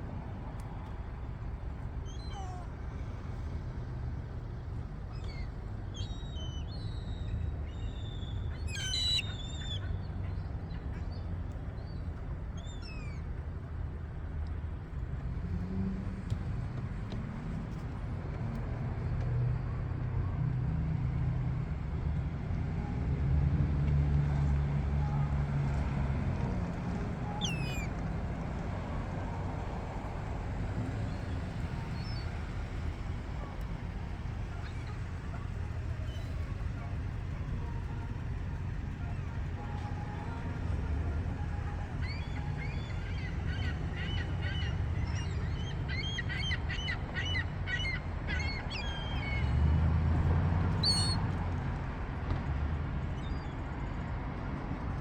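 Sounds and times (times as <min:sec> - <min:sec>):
low engine-like rumble: 0:00.0 - 0:55.0
gulls calling: 0:05.1 - 0:12.0, 0:26.8 - 0:49.6, 0:50.8 - 0:51.2.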